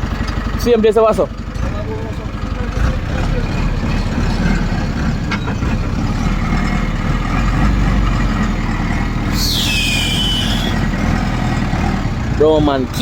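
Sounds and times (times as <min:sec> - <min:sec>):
truck engine running: 0:00.0 - 0:13.0
brake squeal: 0:05.2 - 0:06.8, 0:09.2 - 0:11.1.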